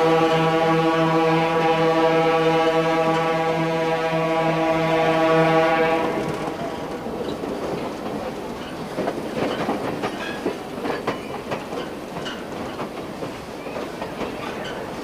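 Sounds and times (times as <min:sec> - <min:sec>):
railroad cars rumbling on track: 0:00.0 - 0:15.0
wheels clacking over rail joints: 0:06.2 - 0:15.0.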